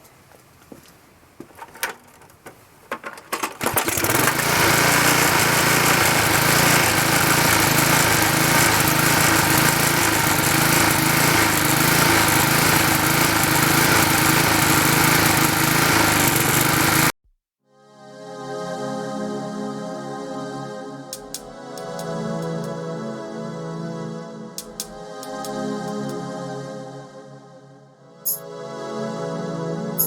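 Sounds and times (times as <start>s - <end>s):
lawnmower engine running: 3.0s - 17.1s.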